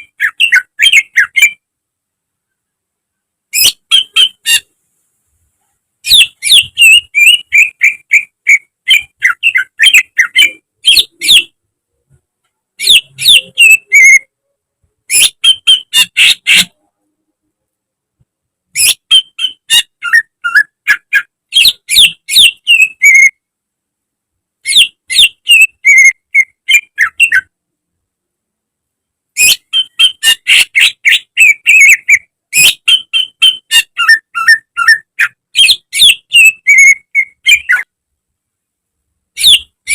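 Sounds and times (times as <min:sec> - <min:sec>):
bird singing whistled chirping notes: 0:00.0 - 0:01.6, 0:03.6 - 0:04.7, 0:06.0 - 0:11.6, 0:12.8 - 0:14.3, 0:15.1 - 0:16.8, 0:18.8 - 0:23.4, 0:24.7 - 0:27.5, 0:29.4 - 0:37.9, 0:39.4 - 0:39.9.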